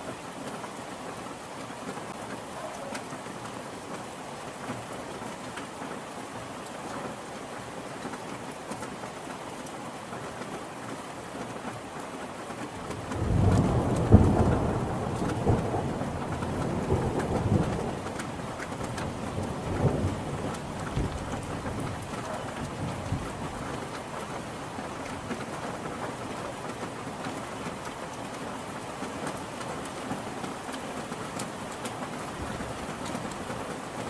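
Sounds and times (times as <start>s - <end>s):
steady rain: 0.0s - 34.0s
thunder rolling: 13.0s - 23.3s.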